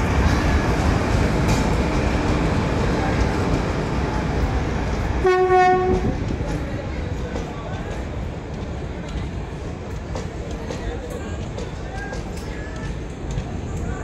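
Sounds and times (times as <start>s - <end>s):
electric train rumbling: 0.0s - 14.0s
train horn blast: 5.2s - 6.2s.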